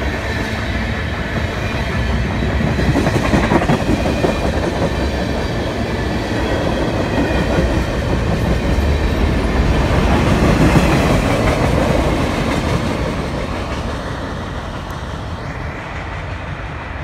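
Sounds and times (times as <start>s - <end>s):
train wheels rumbling and clattering: 0.0s - 17.0s.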